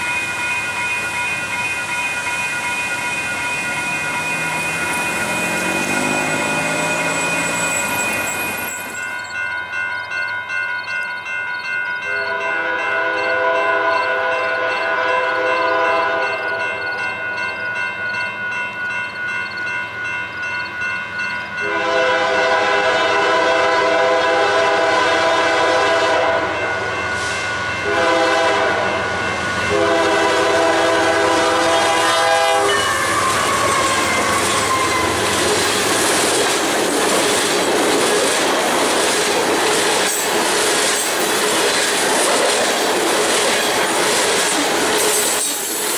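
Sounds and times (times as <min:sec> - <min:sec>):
train engine and wheel rush: 0:00.0 - 0:45.9
freight cars clickety-clack: 0:00.8 - 0:09.4, 0:29.2 - 0:45.9
locomotive air horn blasts: 0:12.1 - 0:16.4, 0:21.6 - 0:35.5.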